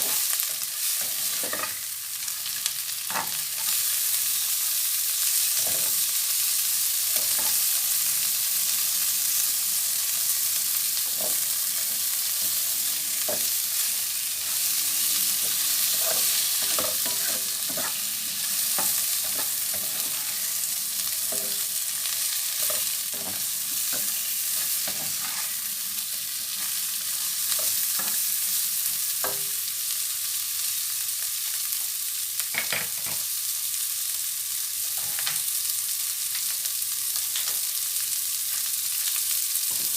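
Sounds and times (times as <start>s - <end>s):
food sizzling in a pan: 0.0s - 39.9s
utensil scraping a pan: 14.4s - 20.6s.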